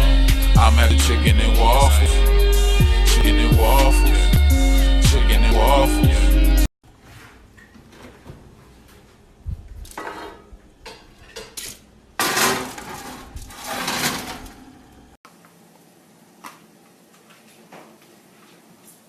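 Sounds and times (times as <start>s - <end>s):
clattering and scraping: 9.8s - 14.6s
dishes clanking: 10.0s - 14.6s.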